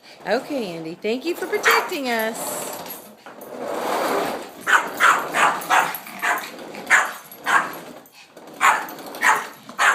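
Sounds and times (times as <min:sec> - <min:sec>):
dog barking: 0:04.7 - 0:07.8, 0:08.6 - 0:09.9.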